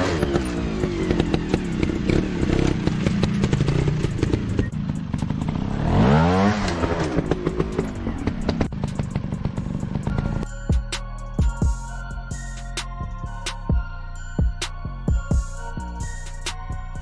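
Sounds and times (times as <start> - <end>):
motorcycle engine running: 0.0 - 11.8
music: 7.0 - 17.0.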